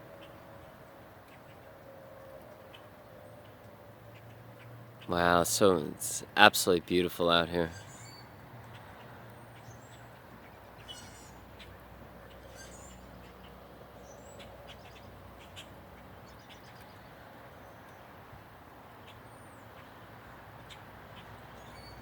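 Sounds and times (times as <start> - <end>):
birds chirping: 5.0 - 11.7, 20.6 - 22.0.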